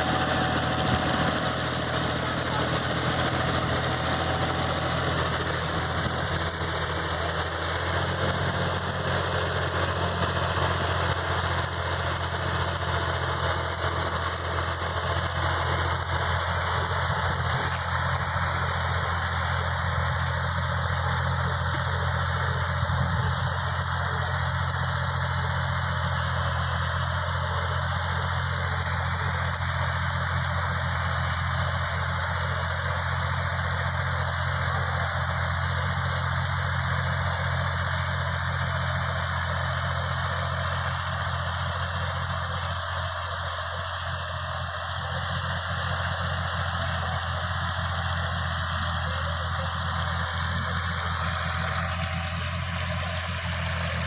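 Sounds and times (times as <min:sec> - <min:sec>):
tractor engine idling: 0:00.0 - 0:54.0.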